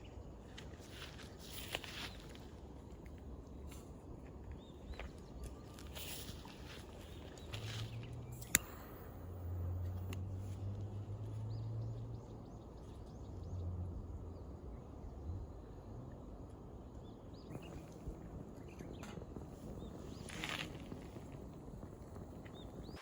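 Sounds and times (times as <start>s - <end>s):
low hum: 0.0s - 23.0s
sharp click: 8.4s - 9.1s
faint bird chirps: 17.0s - 23.0s.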